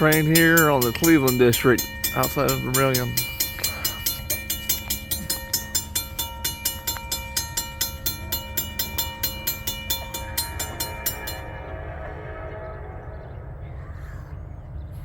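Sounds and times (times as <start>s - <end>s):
train wheels clicking: 0.0s - 11.6s
ringing tones: 0.0s - 13.0s
train rumble: 0.0s - 15.0s.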